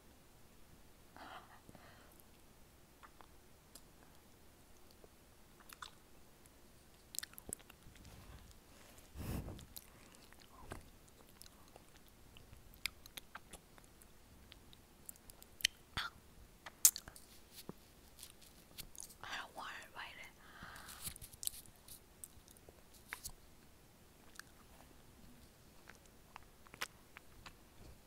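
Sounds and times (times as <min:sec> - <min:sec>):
person chewing frozen honey: 0:07.0 - 0:08.0.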